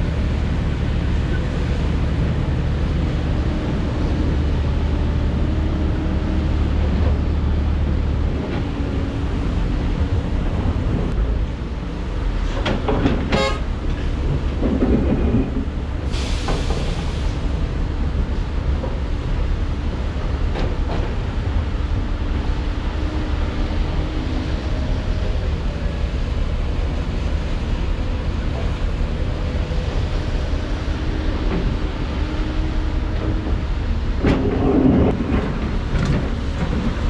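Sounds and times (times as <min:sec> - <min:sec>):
diesel machinery rumbling: 0:00.0 - 0:37.0
burst of hiss: 0:16.1 - 0:17.4.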